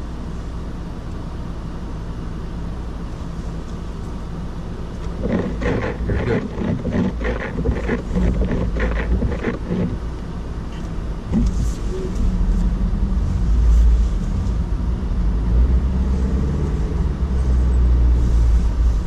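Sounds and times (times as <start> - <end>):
car rumbling on snow: 4.7 - 19.0.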